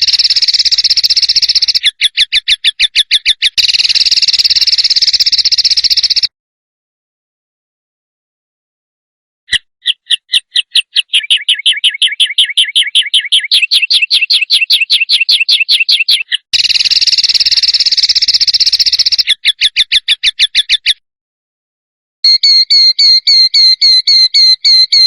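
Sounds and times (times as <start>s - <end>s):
songbird harsh repeated notes: 0.0s - 6.3s, 9.5s - 21.0s, 22.3s - 25.0s.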